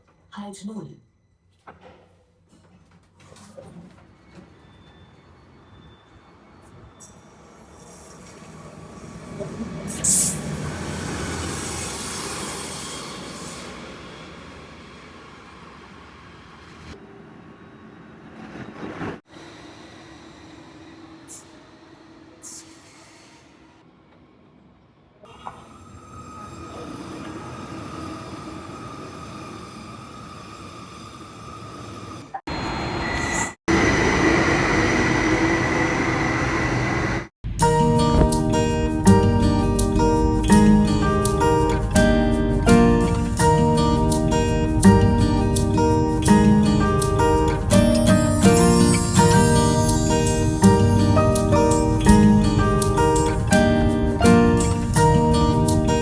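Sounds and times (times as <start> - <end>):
train rumbling on rails: 3.9 - 24.5, 27.0 - 56.0
steady high tone: 37.9 - 56.0.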